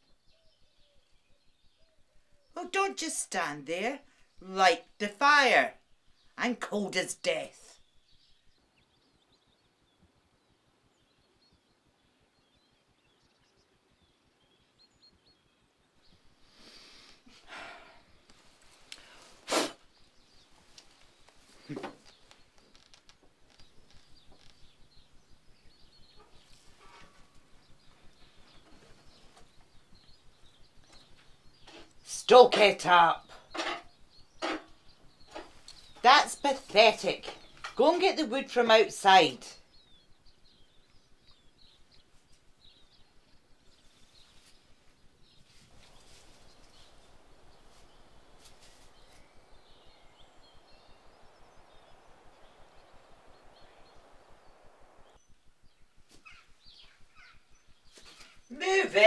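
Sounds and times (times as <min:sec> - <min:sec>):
background hiss: 0:00.0 - 0:59.0
birds chirping: 0:00.0 - 0:59.0
light clicks and crackles: 0:18.2 - 0:19.2, 0:20.4 - 0:32.0, 0:33.4 - 0:36.0.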